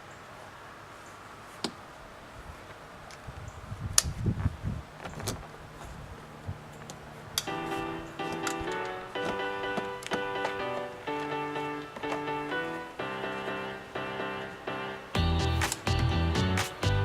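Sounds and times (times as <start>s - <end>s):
background music: 7.5s - 17.0s.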